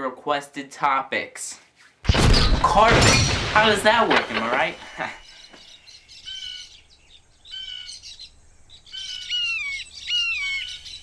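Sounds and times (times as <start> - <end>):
bird whistling calls: 7.4 - 11.0.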